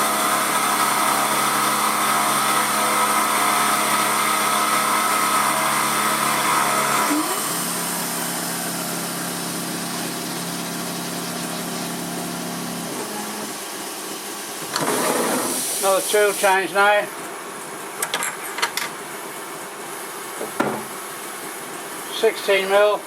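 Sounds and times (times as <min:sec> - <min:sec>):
milling machine whine: 0:00.0 - 0:16.0.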